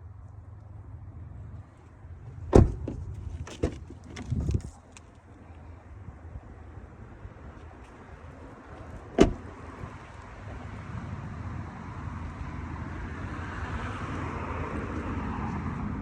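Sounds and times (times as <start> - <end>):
car noise: 1.3 - 5.4, 6.7 - 10.3
sharp thump: 2.5 - 3.9, 9.2 - 9.4.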